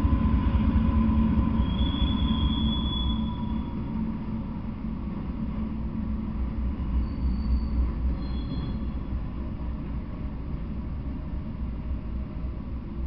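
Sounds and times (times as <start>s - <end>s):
train wheels rumbling on rail: 0.0s - 13.0s
faint high squeals: 1.6s - 3.9s, 6.9s - 9.2s.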